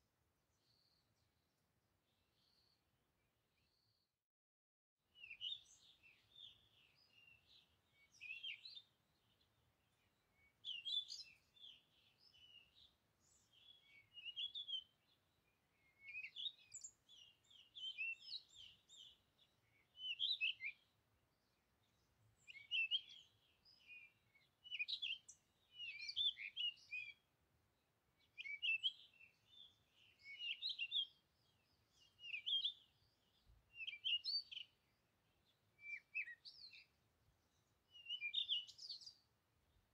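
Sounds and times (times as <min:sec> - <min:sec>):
birds chirping and singing: 0:05.2 - 0:20.9, 0:21.8 - 0:27.2, 0:28.2 - 0:34.9, 0:37.6 - 0:39.2.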